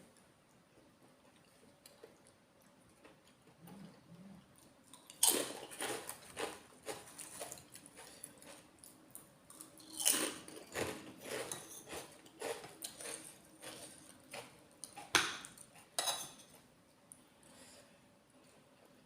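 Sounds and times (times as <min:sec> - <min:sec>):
rhythmic chewing: 0:00.1 - 0:17.7.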